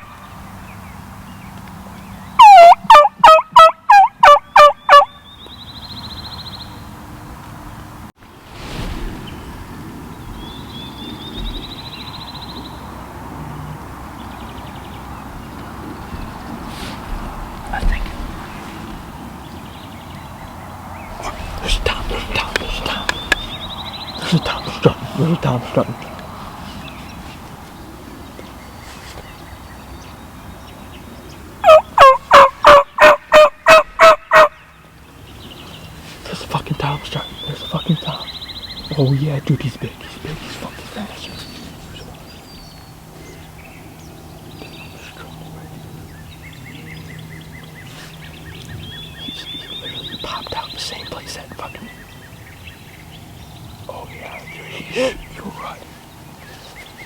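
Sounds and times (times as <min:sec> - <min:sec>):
loud bird call: 0:02.2 - 0:06.9, 0:14.3 - 0:29.9, 0:31.5 - 0:34.9
turkey yelps: 0:02.4 - 0:05.1, 0:31.6 - 0:34.6
wind rumbling on microphone: 0:05.4 - 0:33.0.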